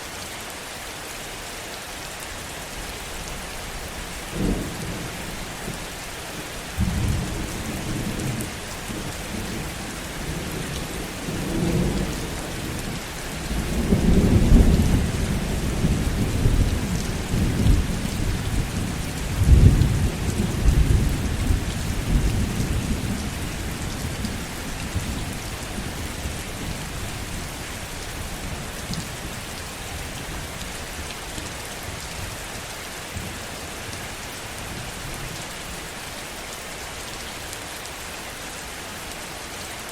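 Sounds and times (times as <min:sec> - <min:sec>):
heavy rain: 0:00.0 - 0:39.9
rolling thunder: 0:06.8 - 0:27.5.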